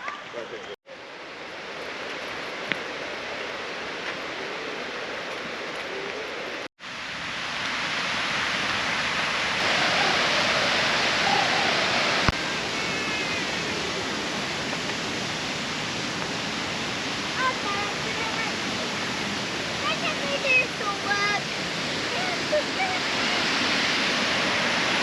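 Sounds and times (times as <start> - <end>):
waterfall rushing: 1.1 - 25.0.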